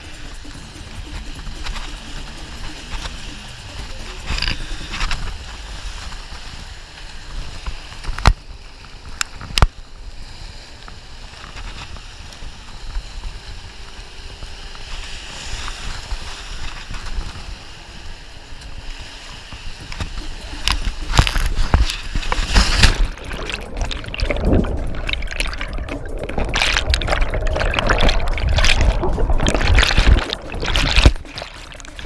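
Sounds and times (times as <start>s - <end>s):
rushing water: 0.0s - 11.9s, 12.7s - 32.0s
wind buffeting microphone: 3.6s - 32.0s.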